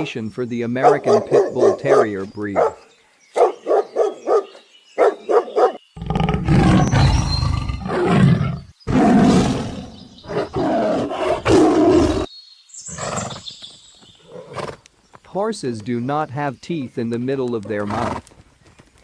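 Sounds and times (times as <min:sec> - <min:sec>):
dog barking: 0:00.8 - 0:02.8, 0:03.4 - 0:05.8
deep rasping animal roars: 0:06.0 - 0:12.3.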